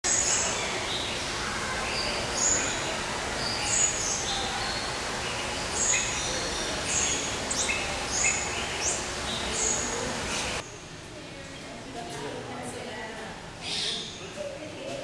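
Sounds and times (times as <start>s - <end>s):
steady background noise: 0.0s - 15.0s
birds chirping and calling: 0.1s - 10.7s, 13.6s - 14.4s.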